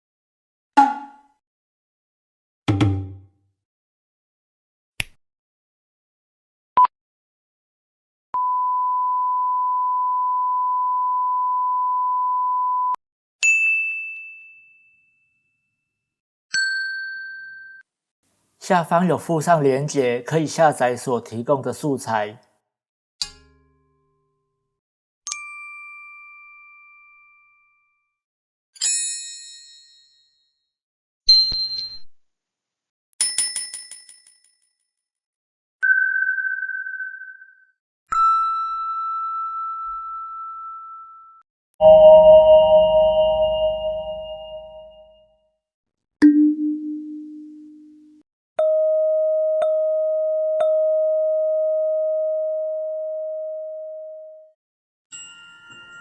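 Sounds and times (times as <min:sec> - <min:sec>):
high bell ding: 0:41.8 - 0:45.2
two-tone chime: 0:41.8 - 0:45.2.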